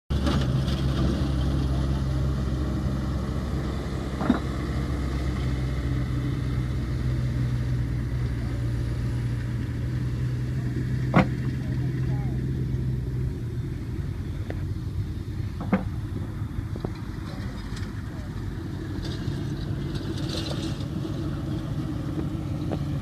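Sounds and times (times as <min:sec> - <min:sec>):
engine humming: 0:00.1 - 0:23.0.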